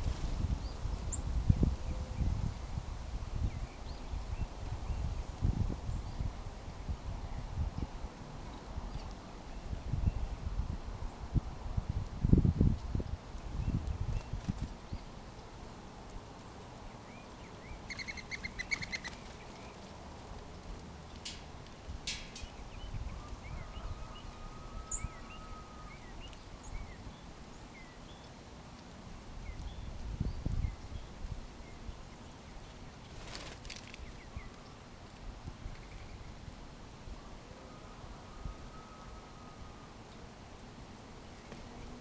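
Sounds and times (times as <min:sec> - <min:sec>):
outdoor background noise: 0:00.0 - 0:42.0
small birds chirping: 0:17.0 - 0:28.4.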